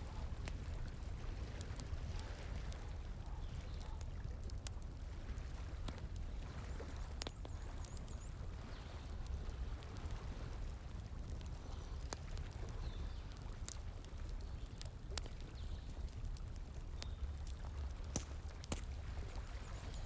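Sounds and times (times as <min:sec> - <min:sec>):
flowing water: 0:00.0 - 0:20.0
wood fire crackling: 0:00.0 - 0:20.0
fire pops: 0:09.2 - 0:20.0.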